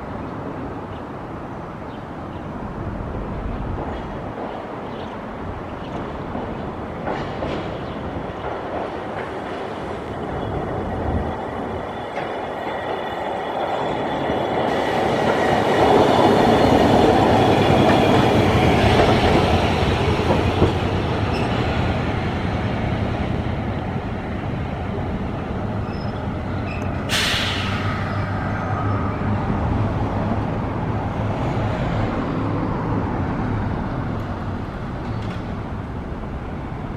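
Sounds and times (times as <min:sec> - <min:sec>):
streetcar wheels rumbling on rails: 0:00.0 - 0:36.9
short sharp hiss: 0:27.1 - 0:27.9.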